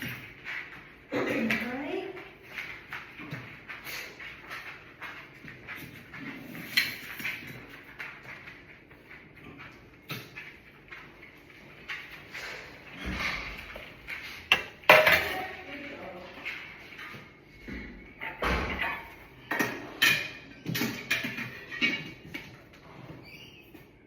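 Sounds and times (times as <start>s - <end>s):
kitchen knocks and bangs: 14.5s - 15.6s, 18.2s - 22.2s.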